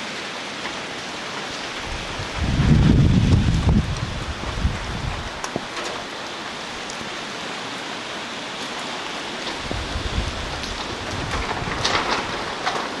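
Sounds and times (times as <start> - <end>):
heavy rain pouring: 0.0 - 13.0
wind gusting: 1.6 - 7.0, 9.1 - 13.0.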